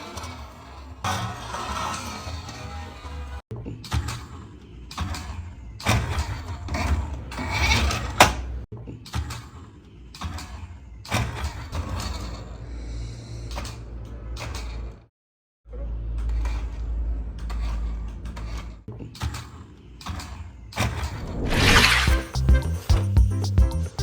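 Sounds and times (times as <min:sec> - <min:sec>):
low hum: 0:21.0 - 0:22.4.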